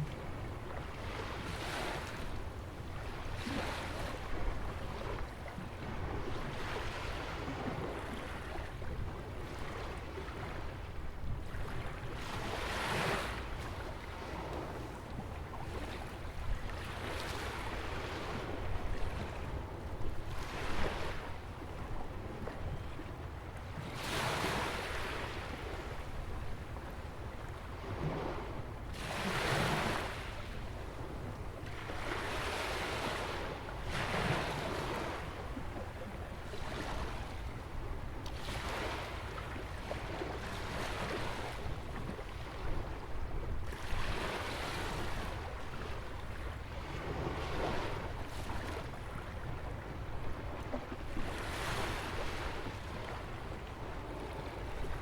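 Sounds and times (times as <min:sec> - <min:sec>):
small waves breaking: 0:31.6 - 0:55.0.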